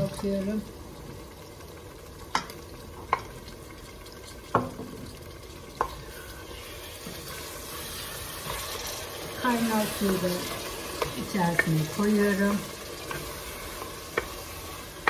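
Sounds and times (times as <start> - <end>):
meat and sauce sizzling: 0.0 - 15.0
spoon stirring in a pot: 5.6 - 15.0.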